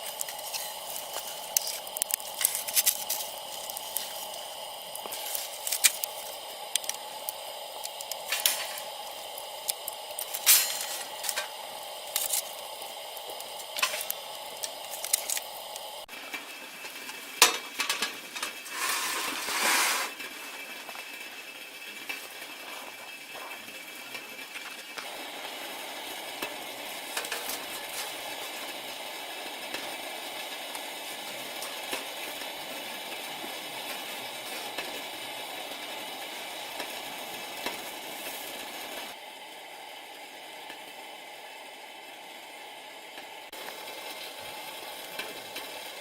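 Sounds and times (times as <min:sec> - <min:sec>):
short hissing burst: 0:00.0 - 0:16.1, 0:18.6 - 0:20.2
small objects clicking and knocking: 0:00.0 - 0:16.1.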